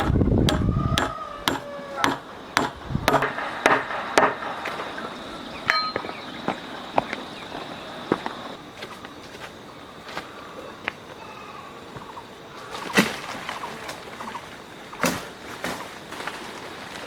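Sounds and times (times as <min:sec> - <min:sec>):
sharp hard knocks: 0:00.0 - 0:06.1.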